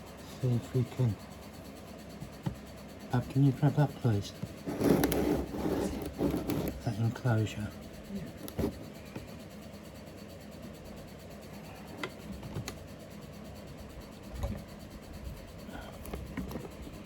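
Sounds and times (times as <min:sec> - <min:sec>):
handling knocks and scrapes: 0:04.3 - 0:06.9, 0:08.4 - 0:09.4.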